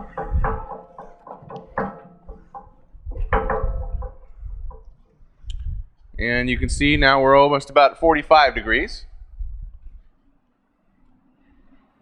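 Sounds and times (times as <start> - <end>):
metal grating and squeaking: 0.0 - 4.7.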